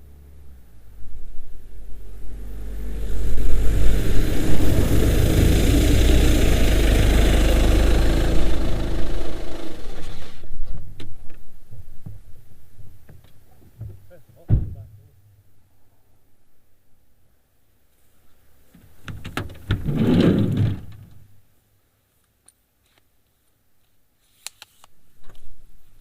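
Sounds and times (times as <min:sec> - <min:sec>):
vehicle engine rumble: 0:00.0 - 0:15.2.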